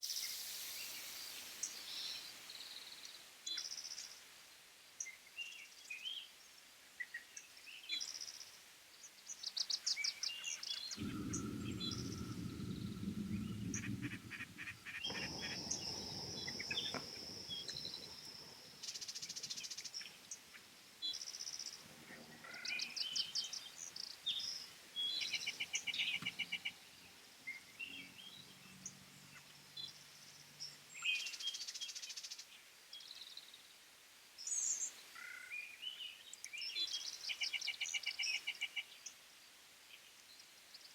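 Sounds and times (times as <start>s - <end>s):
small birds chirping: 5.0s - 33.8s, 34.4s - 40.9s
steady high whine: 11.0s - 18.9s
low rumbling noise: 11.0s - 19.1s.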